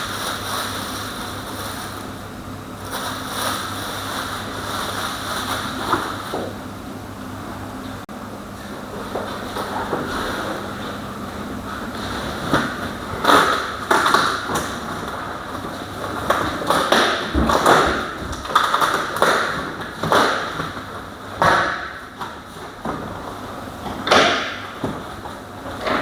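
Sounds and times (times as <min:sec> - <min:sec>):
packaging knocks and rustles: 0:12.0 - 0:26.0.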